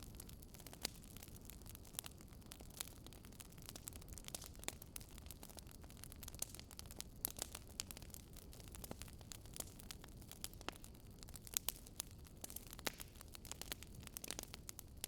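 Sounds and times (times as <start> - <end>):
faint wood fire crackling: 0.0 - 15.0.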